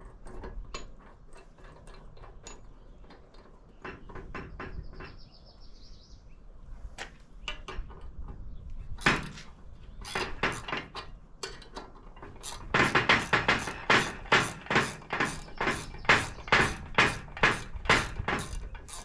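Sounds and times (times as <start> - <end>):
metal tools clinking: 17.4 - 19.0.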